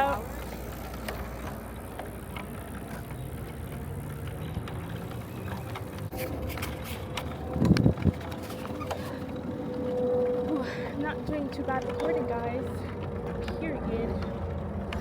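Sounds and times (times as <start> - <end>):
bicycle tyres rumbling: 0.0 - 15.0
wind on microphone: 7.6 - 8.3
clicks and rattles: 11.0 - 15.0.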